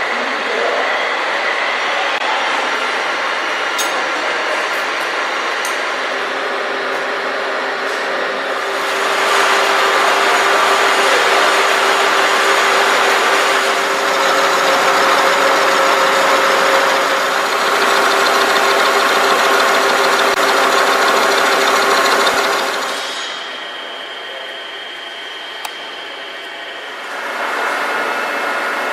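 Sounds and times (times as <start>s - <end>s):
milling machine whine: 8.5s - 28.9s.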